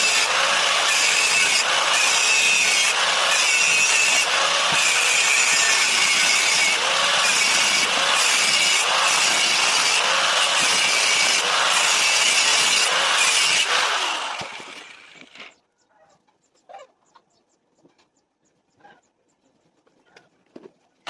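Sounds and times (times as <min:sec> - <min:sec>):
tool grinding: 0:00.0 - 0:15.6.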